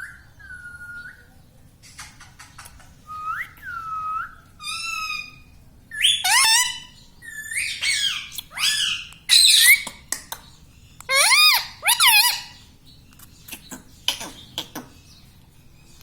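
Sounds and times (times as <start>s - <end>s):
parakeet whistling and squawking: 3.1s - 10.1s, 11.1s - 12.6s.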